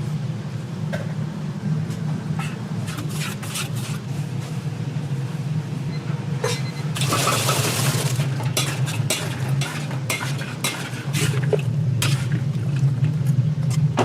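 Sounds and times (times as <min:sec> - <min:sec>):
steady low hum: 0:00.0 - 0:14.0
metal utensil scraping a pan: 0:08.6 - 0:11.4.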